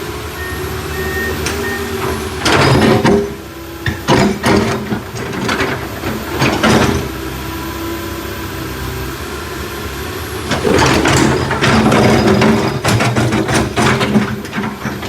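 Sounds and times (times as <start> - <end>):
diesel engine humming: 0.0 - 4.0, 7.0 - 15.0
rough clattering noise: 10.5 - 15.0.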